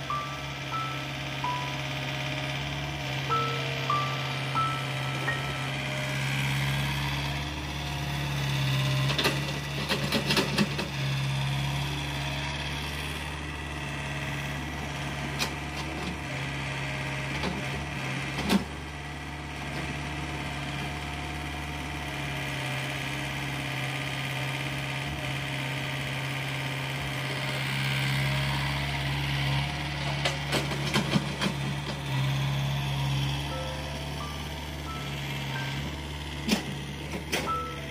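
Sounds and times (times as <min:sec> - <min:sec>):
earth-moving machine engine running: 0:00.0 - 0:37.9
short beeps: 0:03.3 - 0:05.9.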